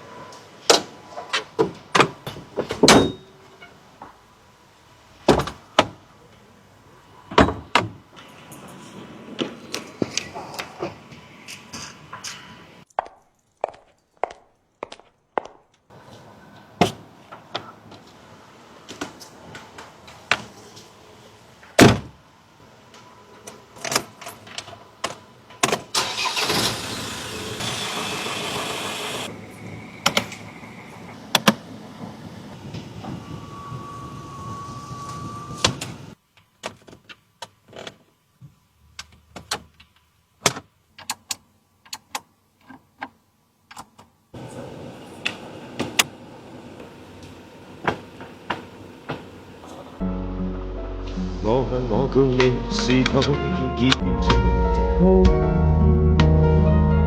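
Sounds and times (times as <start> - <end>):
car engine starting and running: 25.9 - 32.2.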